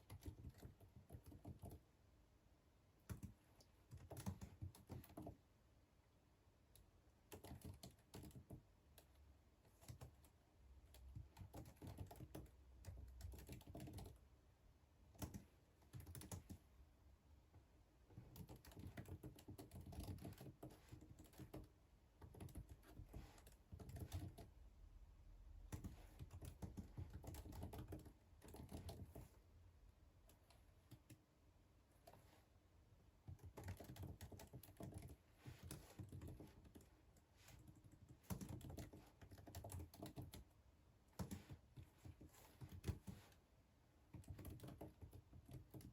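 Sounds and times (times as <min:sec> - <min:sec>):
typing on computer keyboard: 0:00.0 - 0:01.9, 0:03.0 - 0:05.4, 0:06.7 - 0:14.2, 0:15.1 - 0:16.7, 0:18.1 - 0:24.6, 0:25.7 - 0:29.4, 0:30.3 - 0:31.2, 0:33.2 - 0:40.6, 0:41.2 - 0:43.4, 0:44.1 - 0:45.9.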